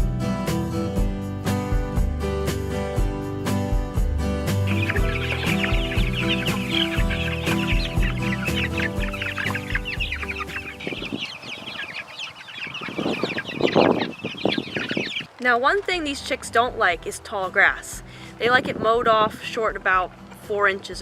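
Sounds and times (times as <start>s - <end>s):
guitar music: 2.7s - 10.8s
chicks peeping: 4.6s - 16.2s.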